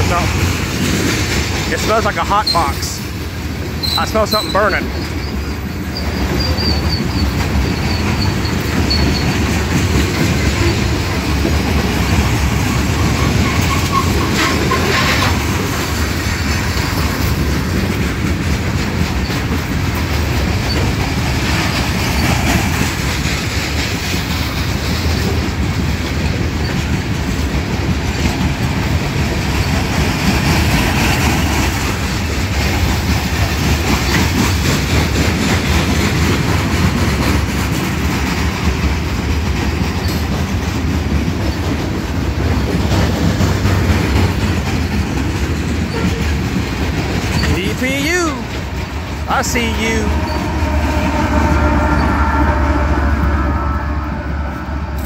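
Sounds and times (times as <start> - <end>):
freight train rumbling past: 0.0 - 55.0
high wheel squeals: 3.8 - 9.6, 12.6 - 15.3, 50.1 - 54.2.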